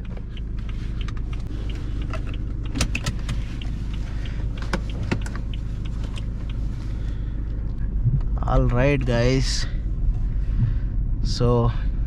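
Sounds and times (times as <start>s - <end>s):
car engine rumbling: 0.0s - 12.0s
sharp clicks: 1.0s - 6.6s.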